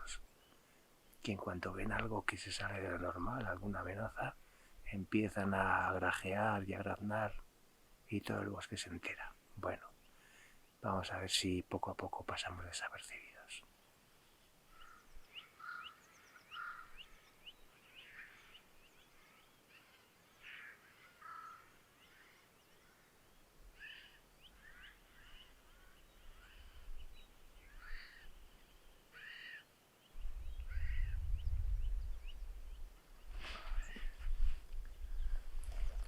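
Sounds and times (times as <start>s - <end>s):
short bird calls: 14.7s - 28.5s, 29.1s - 36.0s
jays harsh alarm calls: 30.7s - 31.2s.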